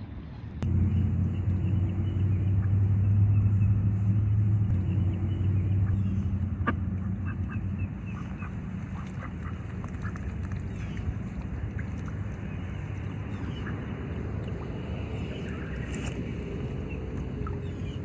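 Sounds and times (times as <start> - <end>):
steady low rumble: 0.0 - 18.0
ducks quacking: 4.8 - 18.0.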